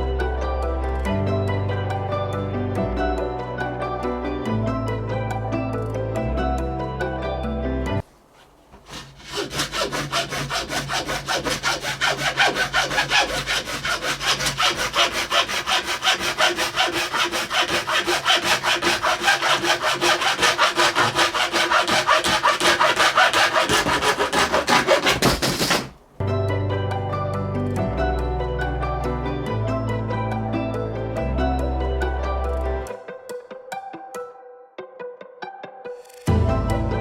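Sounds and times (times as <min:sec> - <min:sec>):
handsaw cutting: 0:08.4 - 0:26.0.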